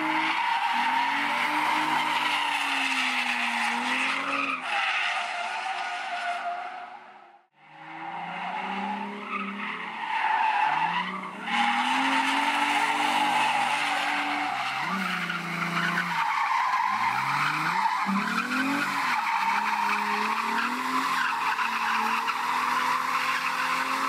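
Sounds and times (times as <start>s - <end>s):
car engine revving: 7.6s - 24.0s.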